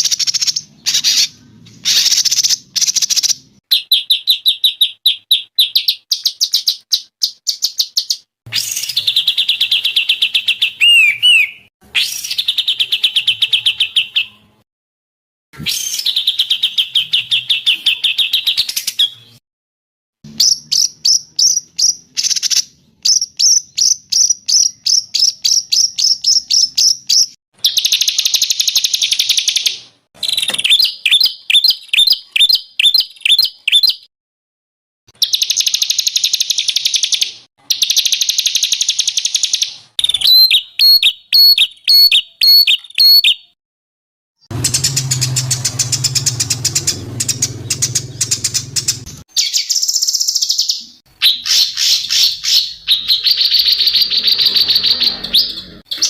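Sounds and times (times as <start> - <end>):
songbird trills: 0.0 - 14.4, 35.2 - 43.6, 44.6 - 56.0.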